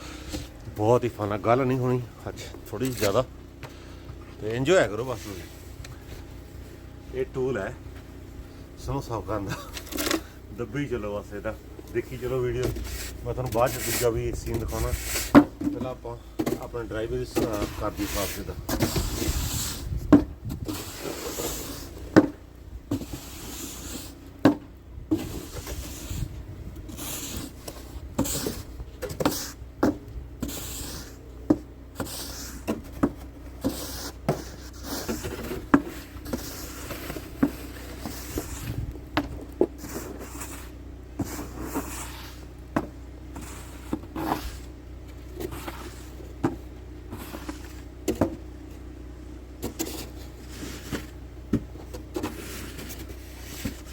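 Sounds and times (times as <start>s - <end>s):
snow shovel scraping: 4.6s - 6.8s, 8.8s - 24.3s, 25.1s - 42.6s, 43.3s - 48.4s, 49.6s - 53.9s
shovel blade knocking pavement: 26.9s - 44.7s.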